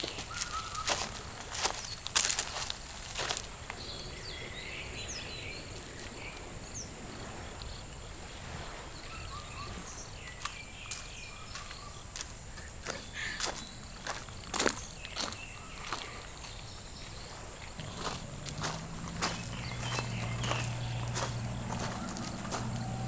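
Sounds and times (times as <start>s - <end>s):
footsteps: 0.0s - 3.5s, 17.6s - 23.0s
outdoor background noise: 0.0s - 23.0s
short bird chirps: 0.3s - 1.2s.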